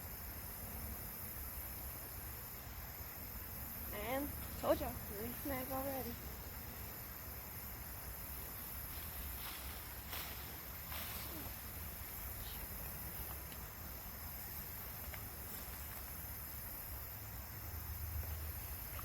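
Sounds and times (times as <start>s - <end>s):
faint high hiss: 0.0s - 19.0s
faint ticks: 12.2s - 13.8s, 14.8s - 16.2s.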